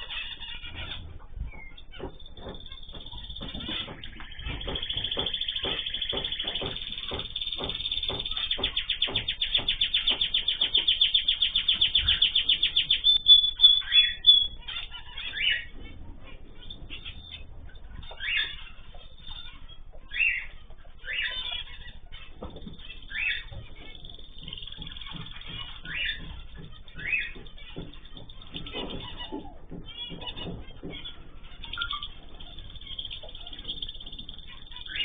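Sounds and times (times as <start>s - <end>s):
cage birds chirping: 0.0s - 35.0s.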